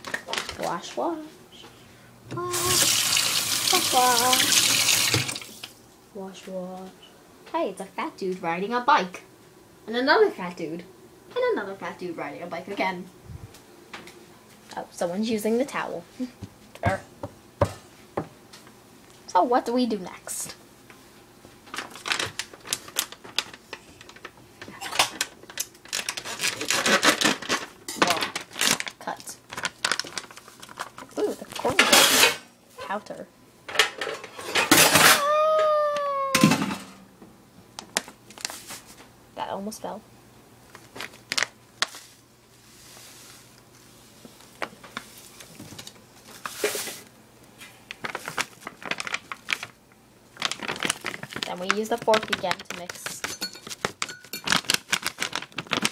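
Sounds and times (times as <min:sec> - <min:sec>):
packet crinkling and clicking: 0:00.0 - 0:00.8, 0:21.7 - 0:31.8, 0:37.8 - 0:38.6, 0:40.7 - 0:42.1, 0:47.8 - 0:55.9.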